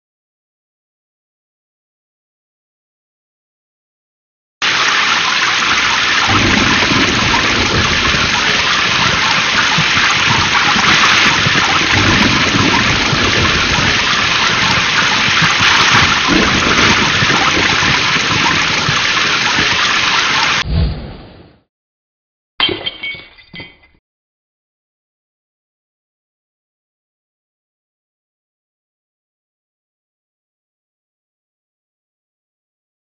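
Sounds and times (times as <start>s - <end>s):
heavy rain hiss: 4.6s - 20.6s
rolling thunder: 6.1s - 21.6s.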